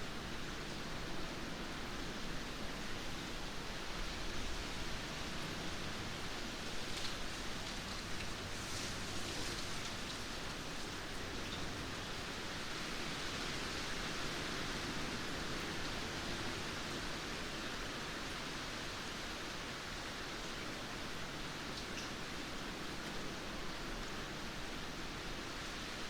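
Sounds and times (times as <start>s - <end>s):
steady rainfall hiss: 0.0s - 26.0s.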